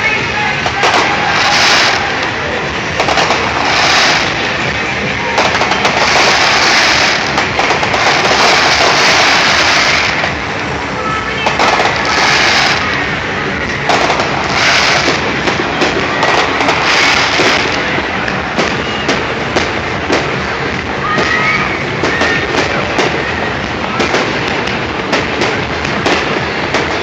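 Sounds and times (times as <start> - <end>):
fireworks banging and crackling: 0.0 - 27.0.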